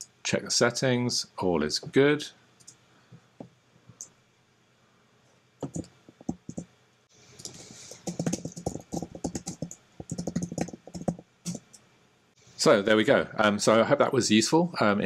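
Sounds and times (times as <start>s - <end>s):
typing on computer keyboard: 5.6s - 6.7s, 7.4s - 11.7s.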